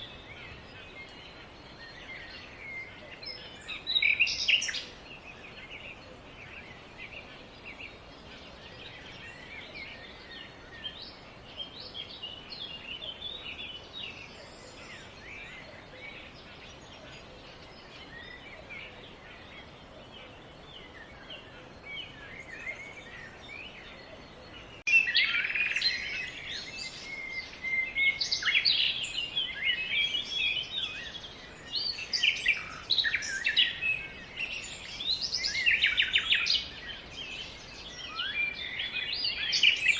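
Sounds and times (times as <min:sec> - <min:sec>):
faint background hiss: 0:00.0 - 0:39.9
small birds chirping: 0:00.0 - 0:39.9.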